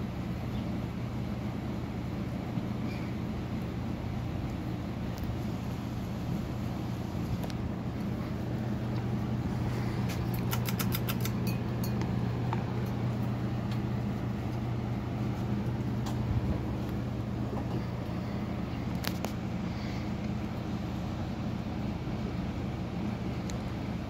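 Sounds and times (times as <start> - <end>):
ceiling fan motor humming: 0.0 - 24.0
light clicks: 10.1 - 11.4.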